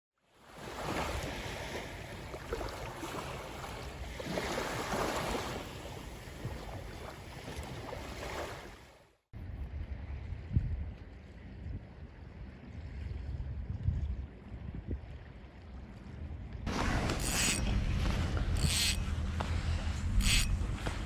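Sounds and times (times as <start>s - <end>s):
sea waves washing: 0.4s - 9.0s, 16.7s - 21.0s
wind buffeting microphone: 9.4s - 21.0s.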